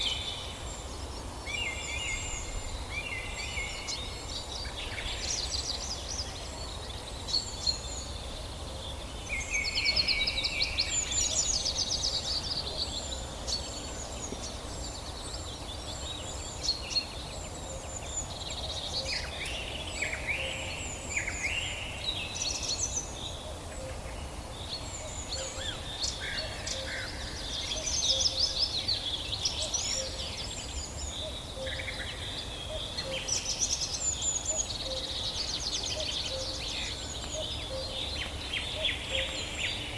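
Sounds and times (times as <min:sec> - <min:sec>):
songbirds singing and calling: 0:00.0 - 0:39.9
steady low background hiss: 0:00.0 - 0:39.9.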